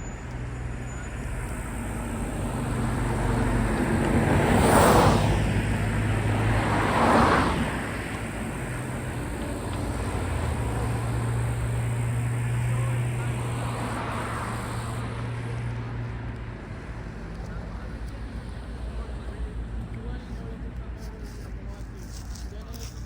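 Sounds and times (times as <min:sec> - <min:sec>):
train rushing past: 0:00.0 - 0:15.4
train engine hum: 0:00.0 - 0:23.0.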